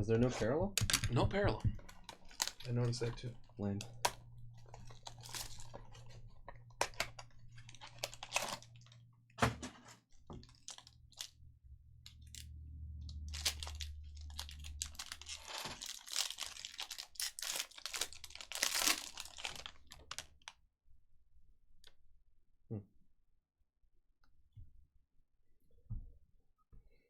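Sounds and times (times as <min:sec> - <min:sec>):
wrappers tearing and crinkling: 0:01.8 - 0:09.0, 0:10.4 - 0:11.4, 0:12.1 - 0:20.5.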